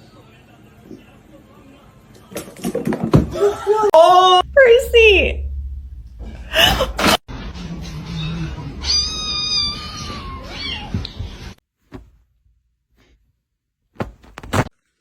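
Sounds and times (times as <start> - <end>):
cat meowing: 8.1 - 11.2
sharp knocks: 14.0 - 14.7.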